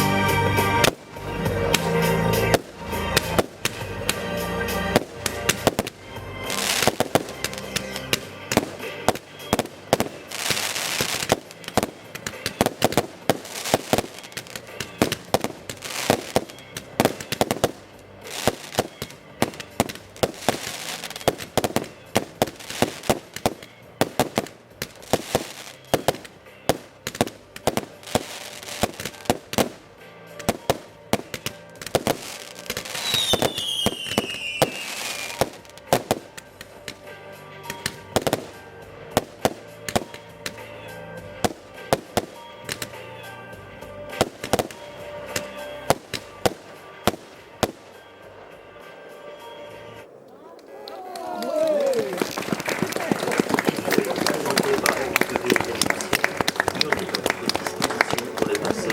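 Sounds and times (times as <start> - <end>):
music: 0.0 - 50.3, 51.2 - 58.9
fireworks hissing: 0.0 - 50.4
fireworks bursting and crackling: 0.0 - 58.9.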